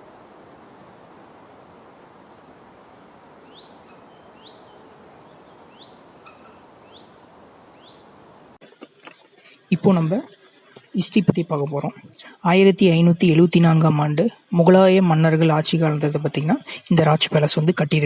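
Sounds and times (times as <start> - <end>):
forest birds whistling: 0.0 - 8.6
steady background hiss: 0.0 - 8.6.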